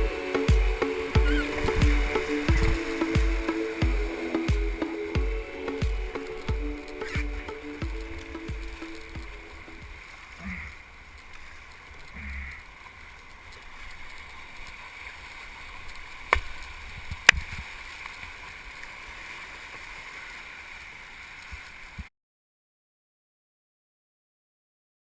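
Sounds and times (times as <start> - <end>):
whitewater rapids rushing: 0.0 - 12.1.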